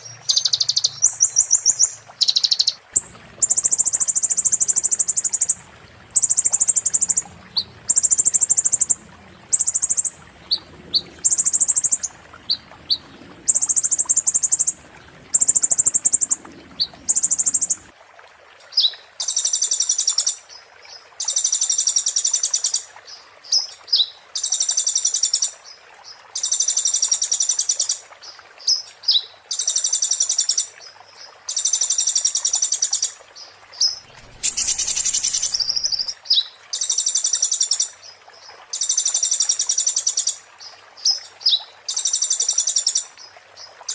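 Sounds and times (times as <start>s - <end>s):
bird singing high trills: 33.8s - 36.1s
bird rising chirps: 34.0s - 36.1s.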